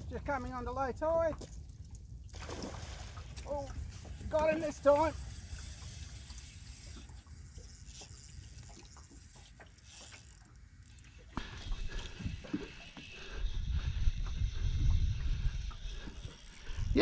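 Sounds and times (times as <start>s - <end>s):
fishing reel ratcheting and clicking: 4.2s - 12.4s.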